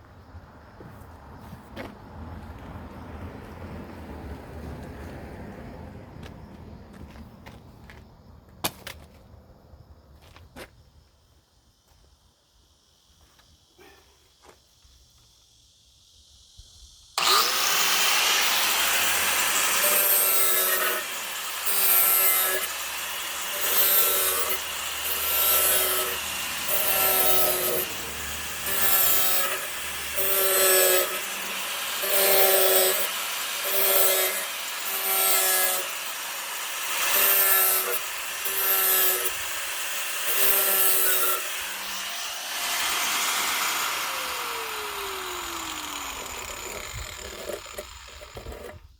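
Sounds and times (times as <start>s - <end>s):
electric power tool motor: 17.2s - 48.9s.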